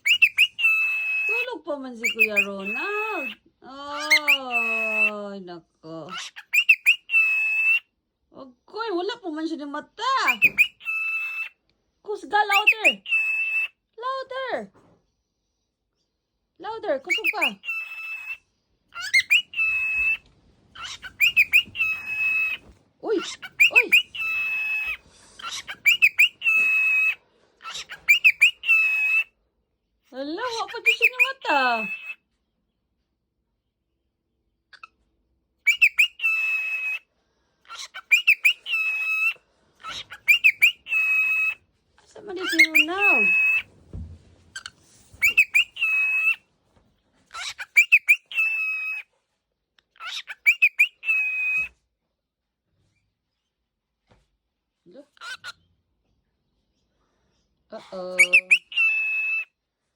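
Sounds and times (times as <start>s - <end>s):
cockatiel whistling: 0.0s - 3.4s, 4.0s - 5.1s, 6.2s - 7.9s, 10.2s - 11.6s, 12.5s - 13.8s, 17.1s - 18.4s, 19.0s - 29.3s, 30.8s - 32.2s, 35.6s - 37.0s, 37.7s - 41.6s, 42.4s - 43.7s, 44.5s - 46.4s, 47.3s - 49.1s, 50.0s - 51.7s, 58.2s - 59.5s.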